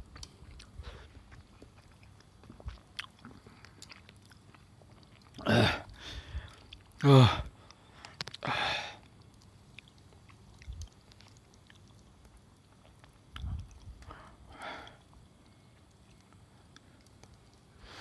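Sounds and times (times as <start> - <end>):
chewing clicks: 0.1 - 5.4, 7.7 - 14.1, 15.4 - 17.7.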